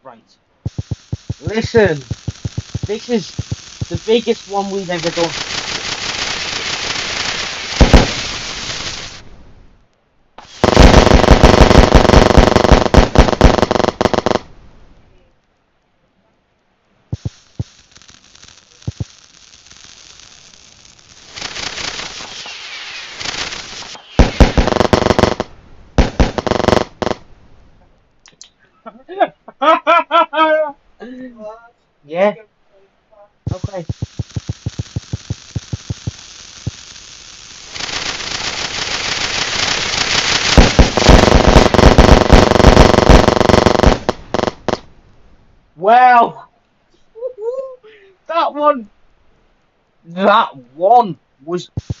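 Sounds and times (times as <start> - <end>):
fireworks popping and banging: 0.6 - 9.3, 10.4 - 14.5, 17.1 - 27.3, 33.5 - 44.9, 51.7 - 52.0
fireworks crackling hiss: 0.6 - 9.8, 10.4 - 14.9, 17.1 - 27.4, 33.5 - 45.2, 51.5 - 52.0.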